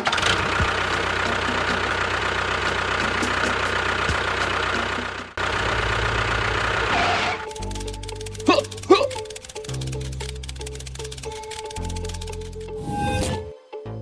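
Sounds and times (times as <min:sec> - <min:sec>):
motor humming: 0:00.0 - 0:13.5
faint regular ticking: 0:07.5 - 0:12.8.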